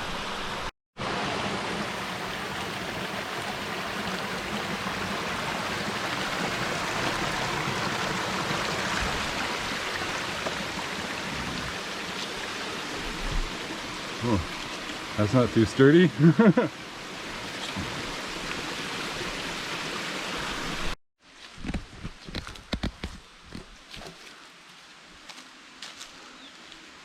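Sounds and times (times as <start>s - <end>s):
stream rushing: 0.0s - 21.0s.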